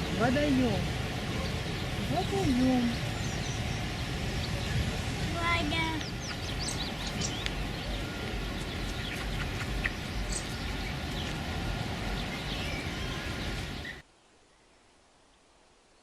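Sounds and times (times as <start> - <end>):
steady rushing noise: 0.0 - 14.1.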